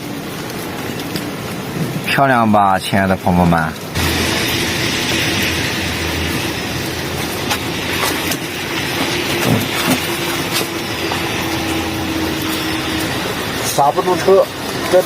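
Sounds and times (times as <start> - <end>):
bicycle tyres rushing on wet road: 0.0 - 15.0
steady low hum: 3.8 - 15.0
bicycle rattles and clicks: 3.9 - 15.0.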